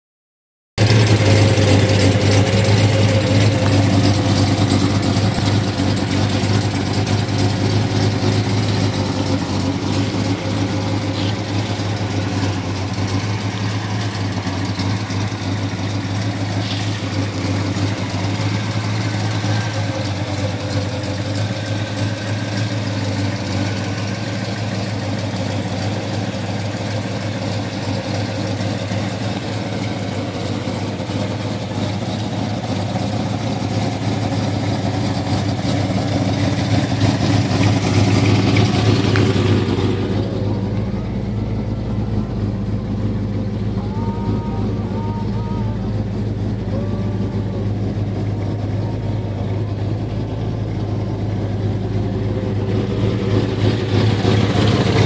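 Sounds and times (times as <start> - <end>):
car engine idling: 0.8 - 55.0.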